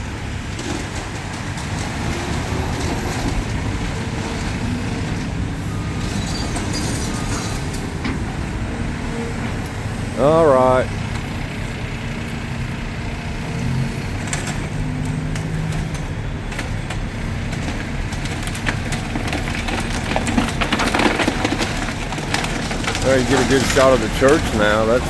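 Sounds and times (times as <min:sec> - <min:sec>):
vehicle engine running: 0:07.6 - 0:25.0.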